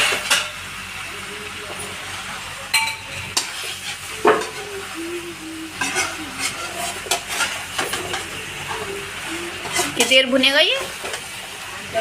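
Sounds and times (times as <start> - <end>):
chicken sizzling in pot: 0.0 - 12.0
spoon knocking and scraping pot: 5.8 - 8.3.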